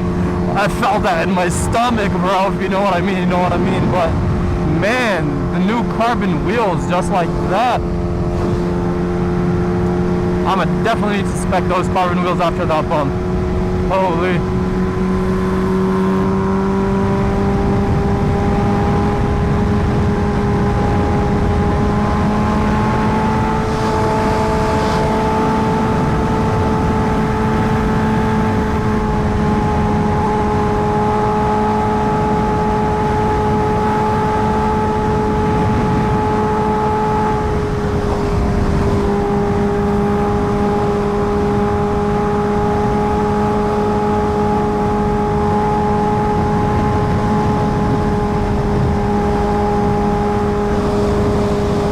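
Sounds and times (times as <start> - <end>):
wind rush: 0.0 - 11.6, 13.0 - 44.2, 45.0 - 51.9
motorcycle engine running: 12.9 - 51.9.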